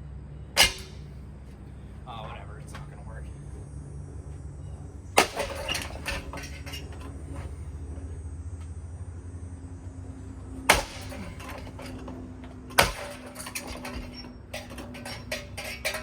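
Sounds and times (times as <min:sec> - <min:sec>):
ceiling fan motor humming: 0:00.0 - 0:16.0
loud bangs: 0:10.7 - 0:12.1
clattering knocks: 0:10.7 - 0:16.0.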